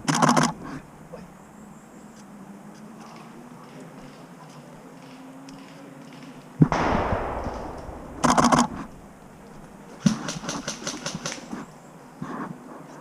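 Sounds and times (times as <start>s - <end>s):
airsoft gun crack with hiss: 5.1s - 11.6s
rapid airsoft shots: 6.7s - 11.5s.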